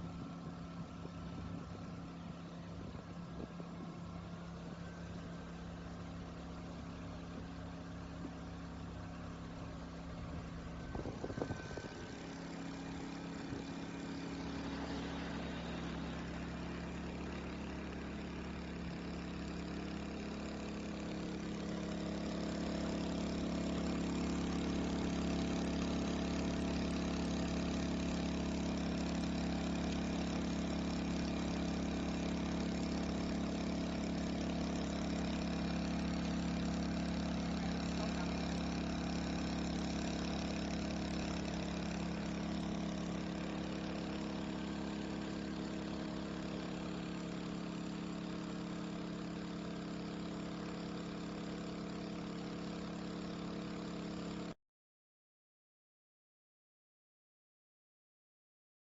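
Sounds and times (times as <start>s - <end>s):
generator engine running: 0.0s - 54.6s.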